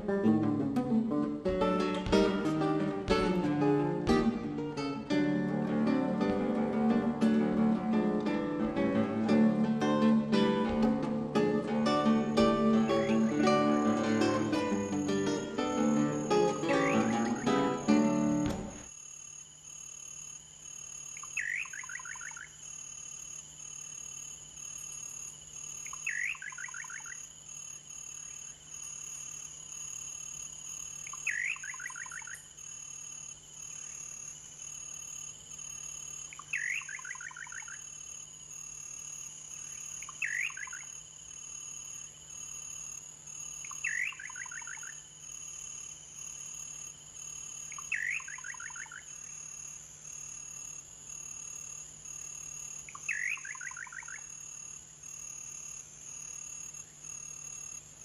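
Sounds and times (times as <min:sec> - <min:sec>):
insects droning: 0:00.0 - 0:58.0
bird calling: 0:12.0 - 0:18.8, 0:31.1 - 0:32.4, 0:36.4 - 0:37.8, 0:40.0 - 0:40.9, 0:43.6 - 0:45.0, 0:47.7 - 0:49.1, 0:52.9 - 0:54.3.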